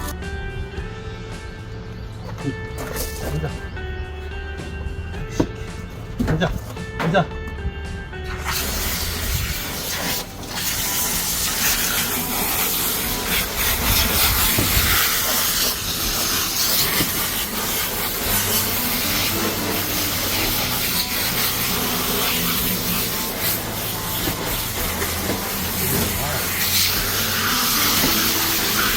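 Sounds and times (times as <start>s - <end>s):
water spraying from hose: 8.2s - 28.9s.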